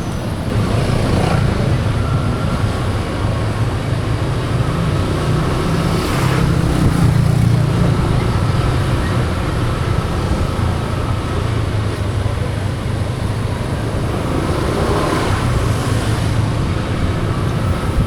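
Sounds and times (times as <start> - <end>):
road and wind noise: 0.0 - 18.0.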